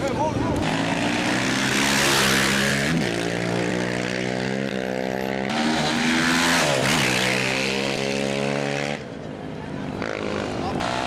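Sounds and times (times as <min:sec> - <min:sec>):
motorcycle engine revving high: 0:00.5 - 0:09.1.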